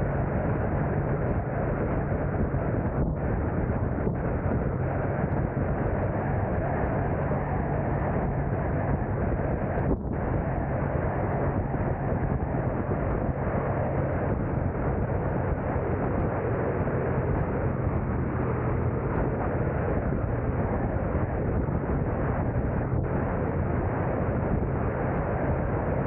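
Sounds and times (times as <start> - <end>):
car engine and tyre hum: 0.0 - 26.0.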